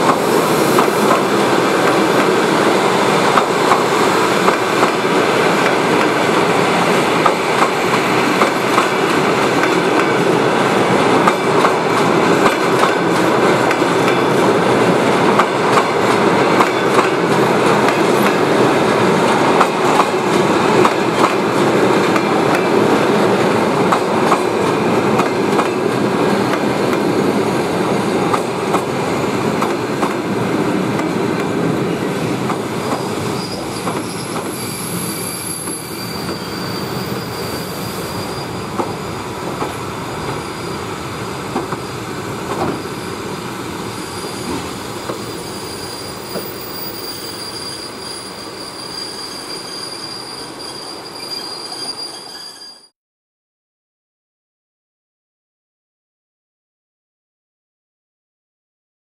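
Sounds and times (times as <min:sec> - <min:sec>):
train coaches rolling past: 0:00.0 - 0:52.9
high-pitched wheel squeals: 0:33.0 - 0:39.2, 0:40.2 - 0:41.0, 0:44.0 - 0:53.0.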